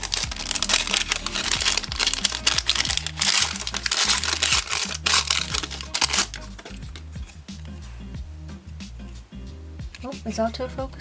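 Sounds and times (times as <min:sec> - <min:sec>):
paper packaging rustling: 0:00.0 - 0:07.4
background music with bass: 0:00.0 - 0:11.0.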